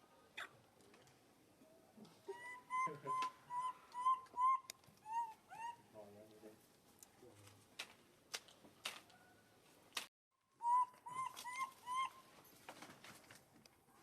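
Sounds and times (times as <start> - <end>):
baby monkey coo calls: 2.3 - 5.9, 10.6 - 12.2.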